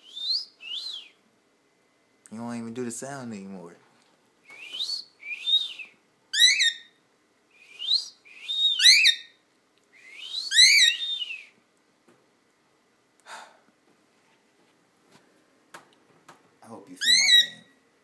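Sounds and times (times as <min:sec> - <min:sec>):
cockatiel shrill calls: 0:06.4 - 0:06.9, 0:08.5 - 0:09.4, 0:10.5 - 0:11.2, 0:17.0 - 0:17.7.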